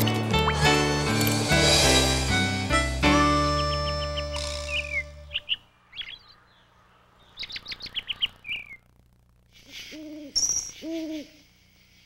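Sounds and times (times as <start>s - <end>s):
small birds chirping: 3.2s - 12.0s.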